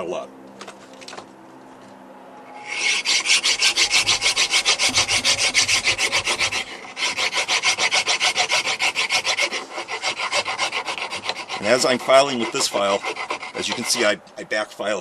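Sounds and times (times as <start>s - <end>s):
hand file rasping on stone: 2.6s - 14.2s.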